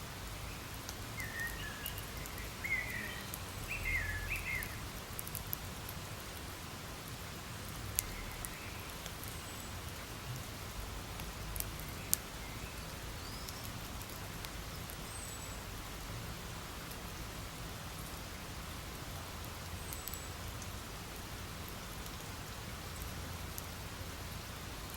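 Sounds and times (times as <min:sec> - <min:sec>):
campfire crackling: 0:00.0 - 0:24.9
burning wood popping: 0:00.7 - 0:02.4, 0:04.3 - 0:10.5.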